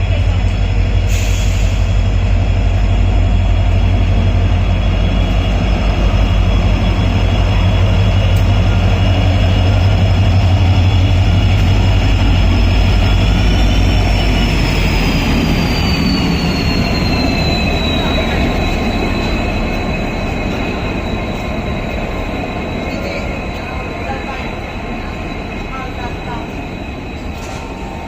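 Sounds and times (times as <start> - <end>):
train low rumble: 0.0 - 28.0.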